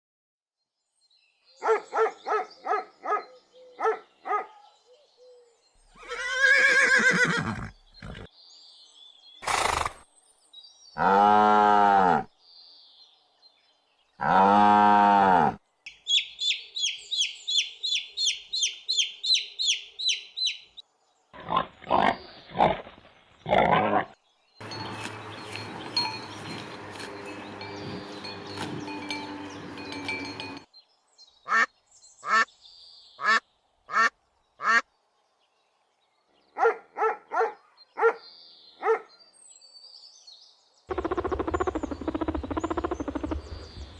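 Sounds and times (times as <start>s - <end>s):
farm animal calls: 40.9s - 43.9s
high repeated chirps: 40.9s - 43.9s.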